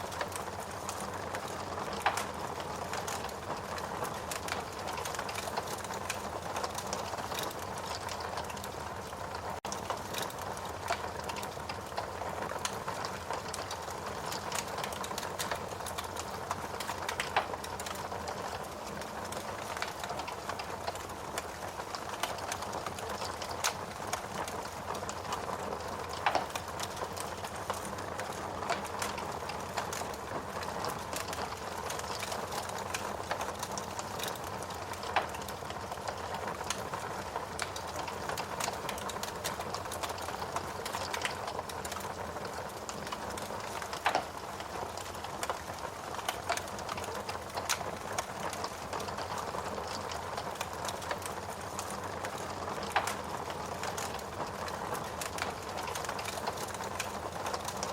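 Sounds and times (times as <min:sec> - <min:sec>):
fire crackling in fireplace: 0:00.0 - 0:57.9.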